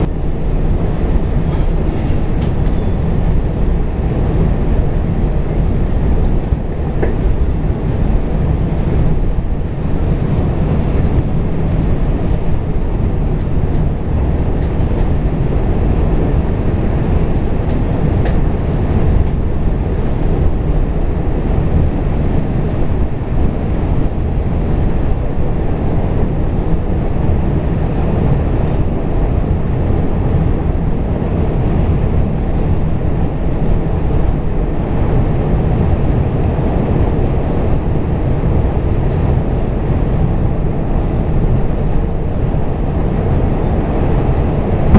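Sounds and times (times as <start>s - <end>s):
subway train rumbling: 0.0s - 44.9s.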